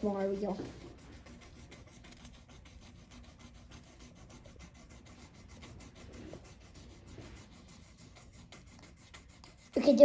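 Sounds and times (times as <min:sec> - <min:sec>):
pencil scribbling on paper: 0:00.0 - 0:10.0.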